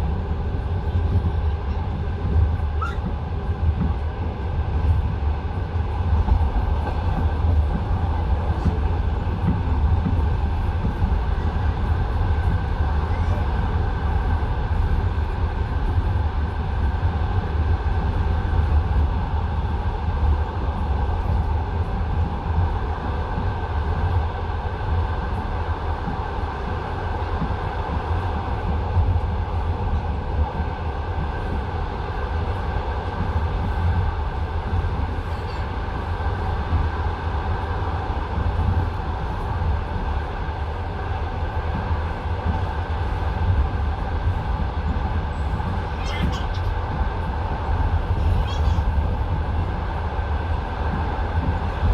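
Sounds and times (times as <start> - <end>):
railway carriage rumble: 0.0 - 51.9.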